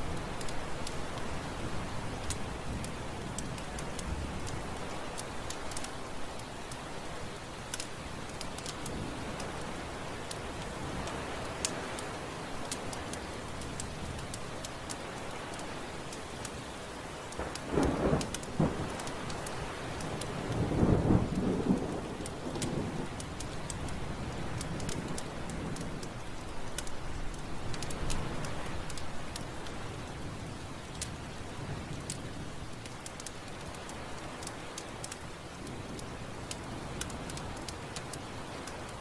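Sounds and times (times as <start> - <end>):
heavy rain: 0.0 - 39.0
thunder rumbling: 17.4 - 26.2.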